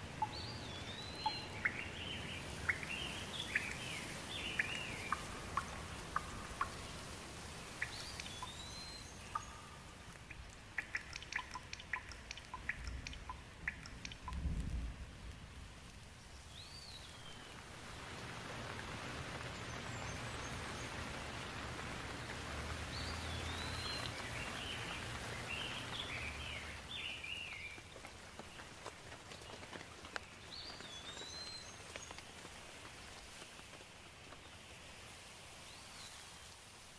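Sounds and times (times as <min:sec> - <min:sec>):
bird chirping: 0:00.0 - 0:07.1, 0:07.7 - 0:14.5, 0:22.8 - 0:27.8
steady rain falling: 0:00.0 - 0:36.9
sharp drip ticks: 0:00.1 - 0:16.0, 0:22.2 - 0:32.6.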